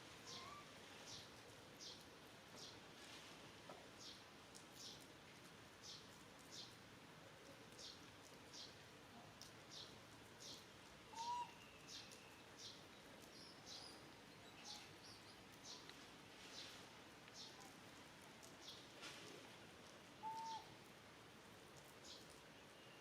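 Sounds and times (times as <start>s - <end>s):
faint bird chirps: 0.2s - 1.2s, 9.7s - 15.9s.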